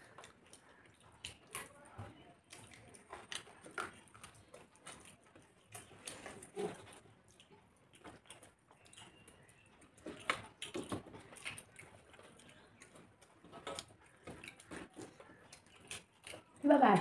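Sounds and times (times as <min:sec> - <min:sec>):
fingers mixing rice on metal plates: 0:00.0 - 0:17.0
wet chewing and lip smacks: 0:00.0 - 0:17.0.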